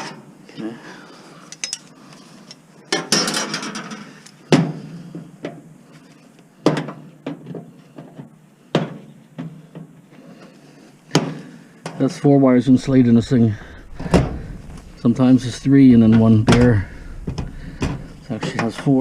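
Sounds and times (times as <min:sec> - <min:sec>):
metallic rattle: 0:12.6 - 0:19.0.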